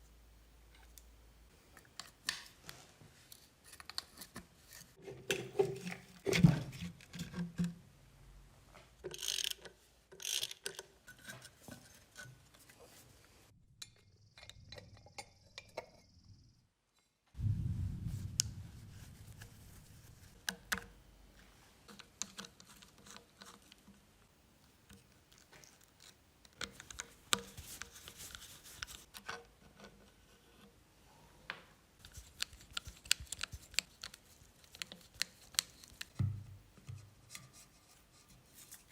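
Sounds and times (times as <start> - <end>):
tools clicking and scraping: 9.0 - 12.8.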